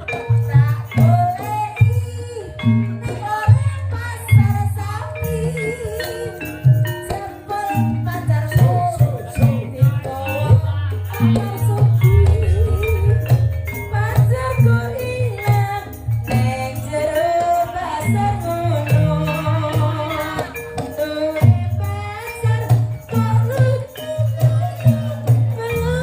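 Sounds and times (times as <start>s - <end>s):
jingling hand percussion: 0.0s - 26.0s
wavering lead melody: 11.1s - 17.5s
heavy steady low drum beat: 11.2s - 16.5s.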